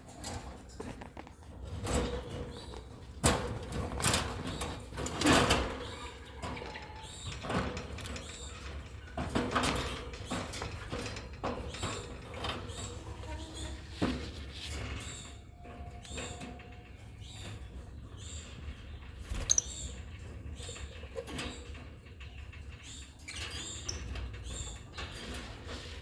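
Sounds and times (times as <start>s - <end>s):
cage scrapes and knocks: 0.1s - 16.8s.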